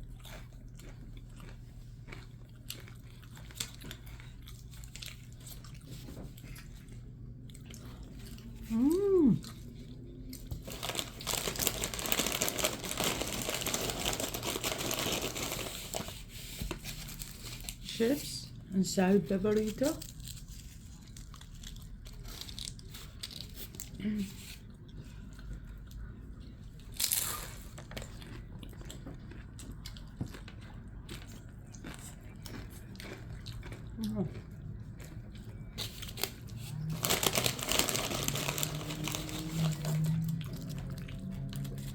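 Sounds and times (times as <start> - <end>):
chewing crunchy food: 0.0 - 17.8, 19.6 - 41.9
crisp crunches: 10.3 - 17.9, 19.6 - 24.6, 35.0 - 41.9
packaging crinkling: 10.4 - 17.9, 35.8 - 40.9.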